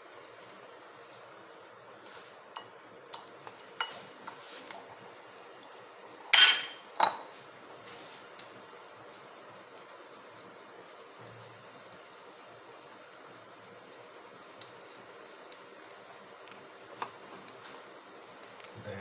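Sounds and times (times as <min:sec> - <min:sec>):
crockery and utensils clinking: 0:06.3 - 0:07.3.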